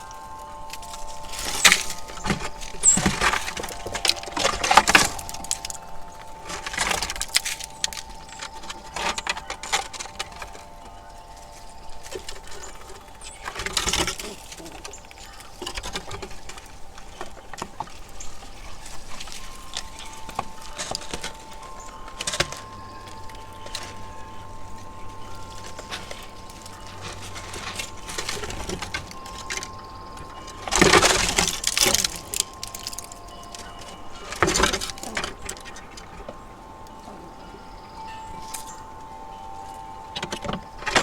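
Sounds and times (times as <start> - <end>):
rustling and crackling: 0.0 - 41.0
wind chime ringing: 0.0 - 41.0.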